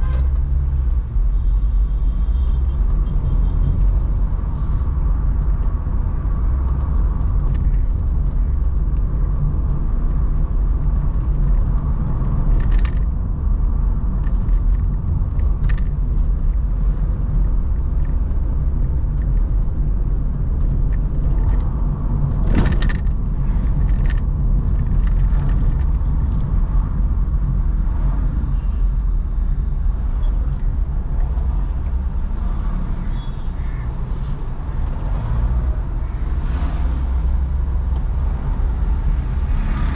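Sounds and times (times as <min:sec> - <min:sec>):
road and engine rumble: 0:00.0 - 0:39.9
light rattles and clicks: 0:05.3 - 0:27.5.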